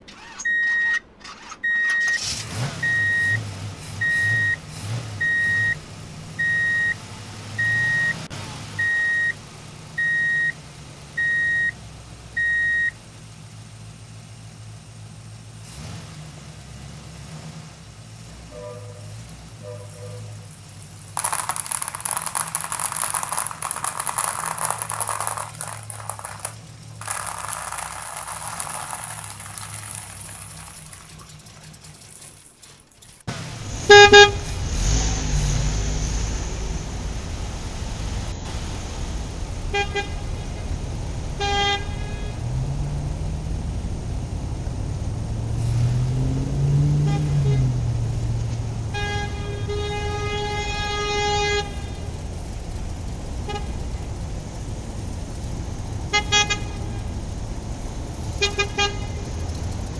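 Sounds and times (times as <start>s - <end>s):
low engine rumble: 2.1s - 59.9s
vehicle horn honking: 18.5s - 20.5s, 21.2s - 30.9s, 33.8s - 34.6s, 39.7s - 40.5s, 41.4s - 42.5s, 48.9s - 52.2s, 56.1s - 57.2s, 58.3s - 59.4s.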